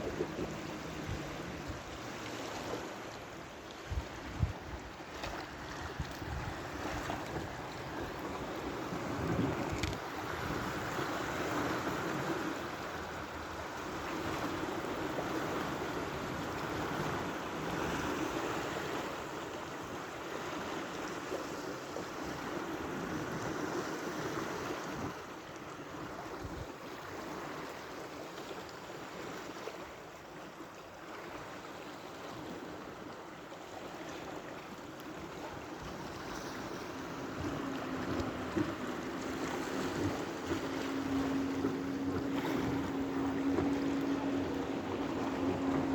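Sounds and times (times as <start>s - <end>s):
wind on microphone: 0.0s - 2.8s, 3.8s - 12.7s, 35.4s - 45.9s
sea waves washing on shore: 0.0s - 45.9s.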